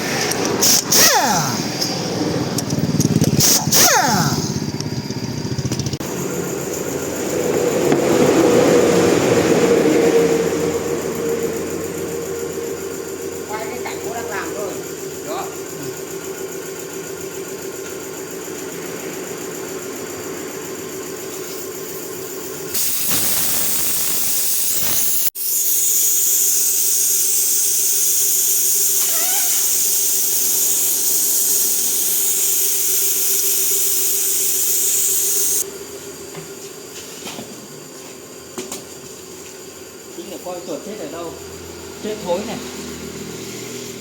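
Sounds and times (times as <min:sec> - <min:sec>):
compressed air hissing: 0:00.0 - 0:04.8, 0:22.6 - 0:35.6
machine humming: 0:22.7 - 0:25.3.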